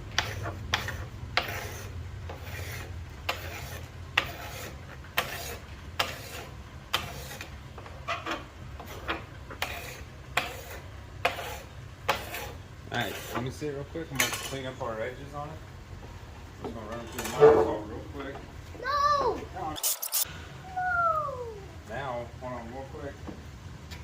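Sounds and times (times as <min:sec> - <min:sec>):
hand scraper scraping wood: 0:00.1 - 0:07.5, 0:08.8 - 0:13.5.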